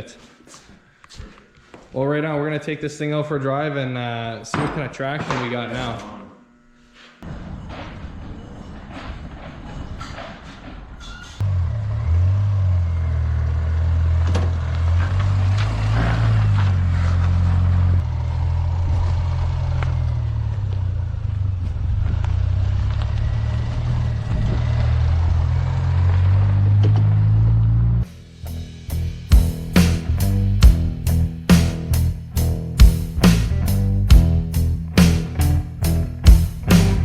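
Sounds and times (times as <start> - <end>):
car engine running: 11.4 - 37.0.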